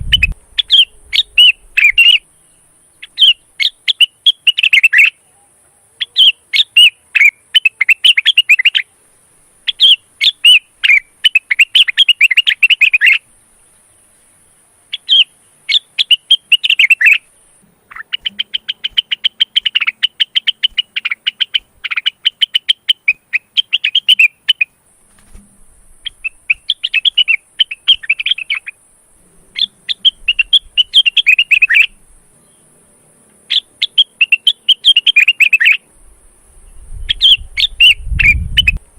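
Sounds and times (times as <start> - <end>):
bird chattering chirps: 0.0 - 5.2, 6.0 - 8.9, 9.6 - 13.2, 14.9 - 24.7, 26.0 - 28.8, 29.5 - 32.6, 33.5 - 35.8, 36.7 - 38.8.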